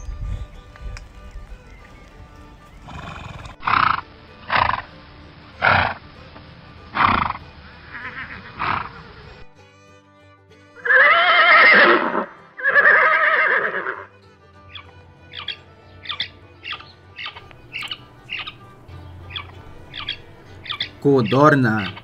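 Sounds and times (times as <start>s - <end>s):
background music: 0.0s - 22.0s
horse neighing: 2.7s - 4.9s, 5.6s - 6.0s, 6.9s - 9.2s, 10.8s - 14.1s, 14.7s - 22.0s
horse blowing breathily: 5.6s - 6.0s, 6.9s - 7.5s.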